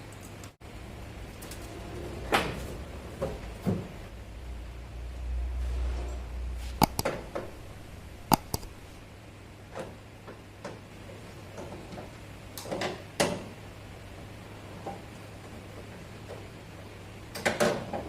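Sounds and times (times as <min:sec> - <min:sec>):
low steady hum: 0:04.1 - 0:09.6
metal tools knocking and clicking: 0:06.8 - 0:07.6, 0:08.2 - 0:08.8.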